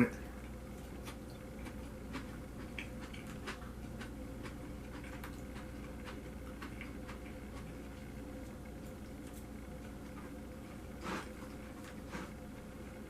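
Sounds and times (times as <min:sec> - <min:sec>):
steady low hum: 0:00.0 - 0:13.0
person chewing: 0:00.2 - 0:13.0.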